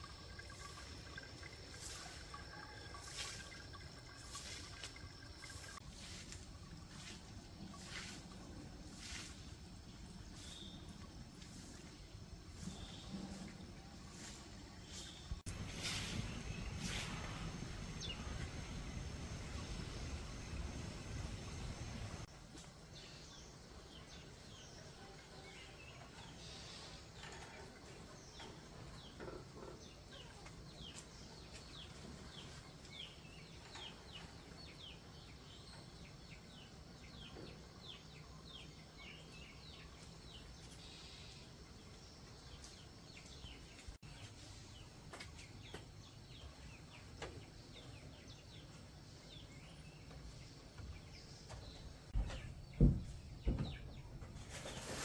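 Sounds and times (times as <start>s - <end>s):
faint low outdoor rumble: 0.0s - 26.3s
birds chirping: 14.1s - 22.3s.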